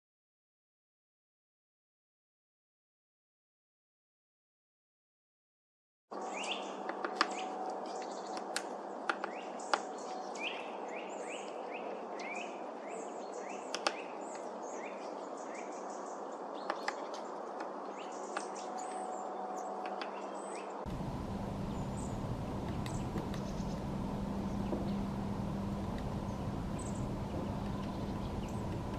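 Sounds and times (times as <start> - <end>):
birds chirping and twittering: 6.1 - 28.9
low background rumble: 20.8 - 28.9
sharp clicks: 22.6 - 23.9.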